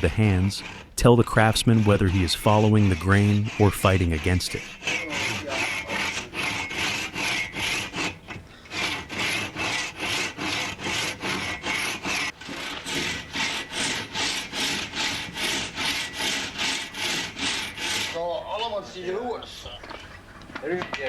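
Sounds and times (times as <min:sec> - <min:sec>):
hand saw cutting wood: 0:00.0 - 0:19.6.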